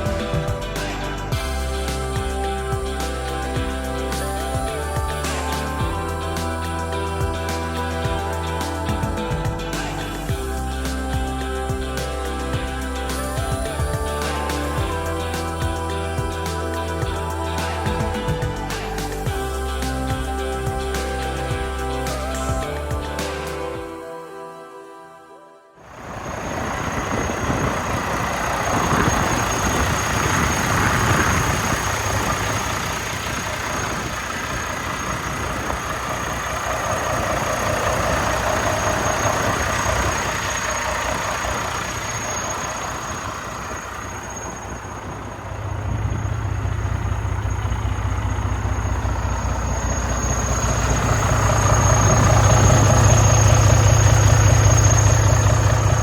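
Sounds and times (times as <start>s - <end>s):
deep low rumble: 0.0s - 23.8s, 44.1s - 56.0s
diesel truck engine idling: 0.0s - 23.8s, 25.9s - 56.0s
thin high whine: 0.0s - 24.8s, 25.8s - 56.0s.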